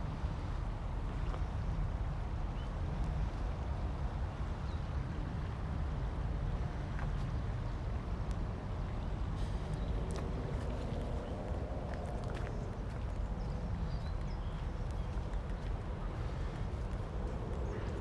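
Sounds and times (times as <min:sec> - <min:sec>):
river running: 0:06.8 - 0:18.0.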